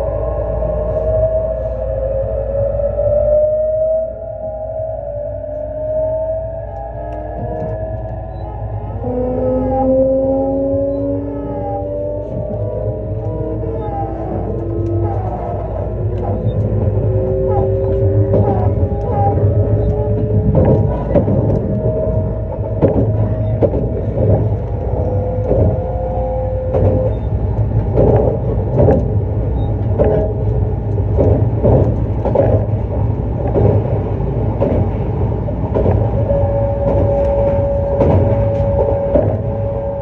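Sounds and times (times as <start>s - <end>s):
train rumbling: 0.0s - 40.0s
wheels knocking over rail joints: 17.4s - 40.0s.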